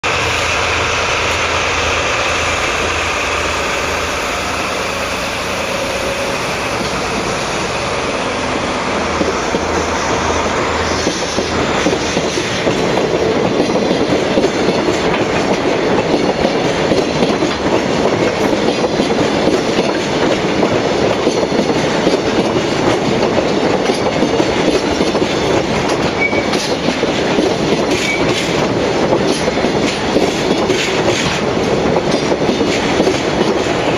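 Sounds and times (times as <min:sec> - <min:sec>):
locomotive engine throb and whine: 0:00.0 - 0:12.3
train wheels clattering over rails: 0:00.1 - 0:33.9.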